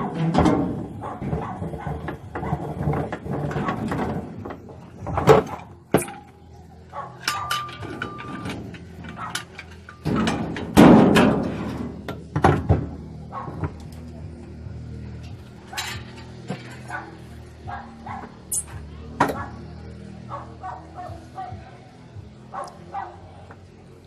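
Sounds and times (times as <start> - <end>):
loud scraping clatter: 0.0 - 6.2, 7.2 - 13.8
machine parts knocking and scraping: 0.0 - 6.4, 7.0 - 14.1, 15.2 - 17.5
brief squeak: 18.5 - 18.8.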